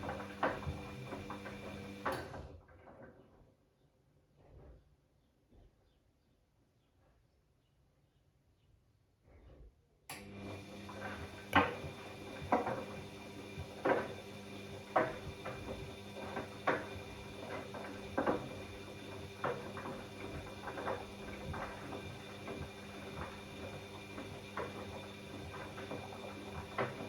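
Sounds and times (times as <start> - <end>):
washing machine drum humming: 0.0 - 2.3, 10.2 - 27.0.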